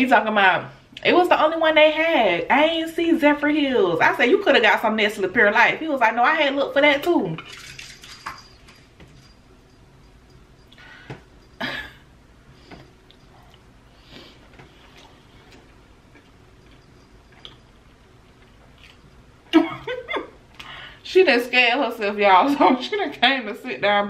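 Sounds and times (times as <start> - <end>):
quiet chewing: 12.6 - 19.3
soft mouth clicks and smacks: 14.8 - 17.6.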